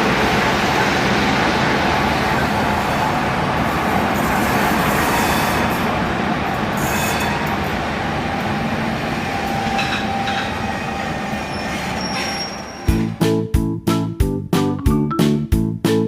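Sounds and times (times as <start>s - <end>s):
diesel train rumbling: 0.0s - 14.0s
high wheel squeals: 9.3s - 13.1s.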